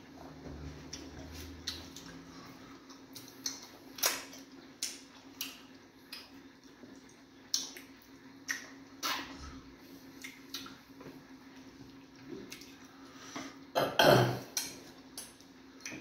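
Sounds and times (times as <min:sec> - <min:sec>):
wet chewing smacks: 0:10.1 - 0:12.9.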